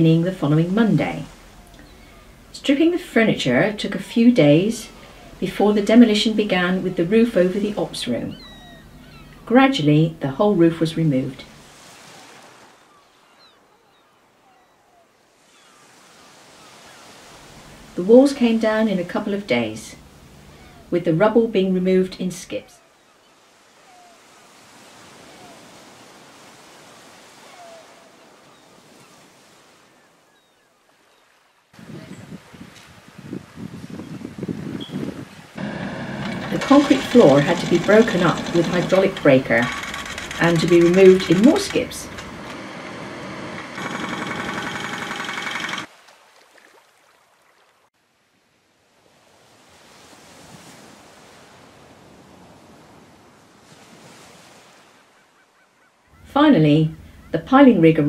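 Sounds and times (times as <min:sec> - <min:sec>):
surf washing: 0:00.0 - 0:13.5, 0:15.2 - 0:30.3, 0:31.0 - 0:47.9, 0:48.8 - 0:55.2
faint bird chirps: 0:01.5 - 0:02.4, 0:08.3 - 0:09.5, 0:12.8 - 0:17.2, 0:22.7 - 0:24.4, 0:27.4 - 0:31.4
wind buffeting microphone: 0:31.8 - 0:42.5
hydraulic breaker hammering concrete: 0:35.6 - 0:45.9
steady outdoor rushing noise: 0:35.6 - 0:45.9.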